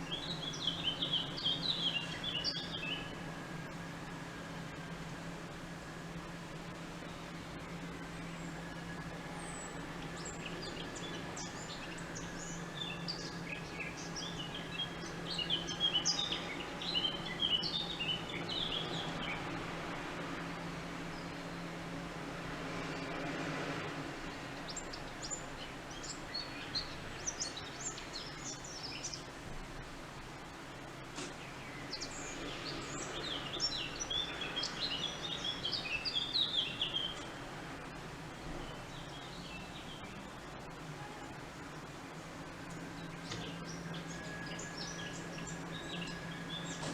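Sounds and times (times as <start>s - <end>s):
small birds chirping: 0.0s - 3.2s, 7.0s - 19.8s, 24.3s - 29.4s, 30.5s - 46.9s
songbird twittering: 0.0s - 3.2s, 9.4s - 19.5s, 31.5s - 37.4s
steady low hum: 0.0s - 46.9s.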